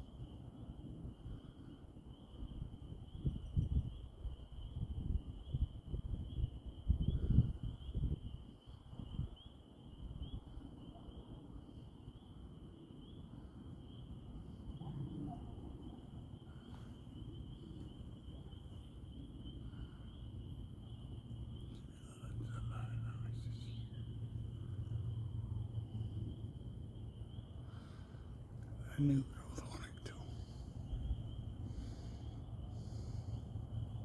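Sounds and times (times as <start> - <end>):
crickets trilling: 0.0 - 34.0
low uneven rumbling: 14.8 - 34.0.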